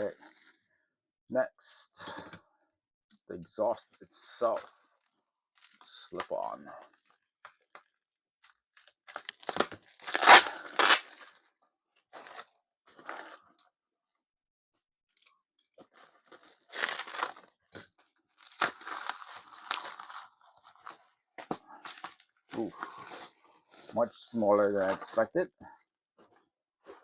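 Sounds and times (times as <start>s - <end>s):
packaging torn and crinkled: 8.5s - 11.5s, 16.2s - 17.6s, 18.4s - 21.0s.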